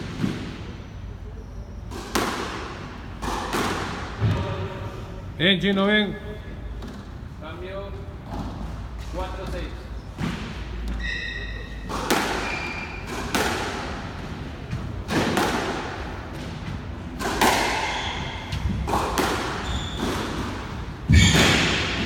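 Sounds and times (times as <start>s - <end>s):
squash ball hits echoing: 1.9s - 4.9s, 10.1s - 22.0s
shoes squeaking on court floor: 8.2s - 15.0s, 16.3s - 22.0s.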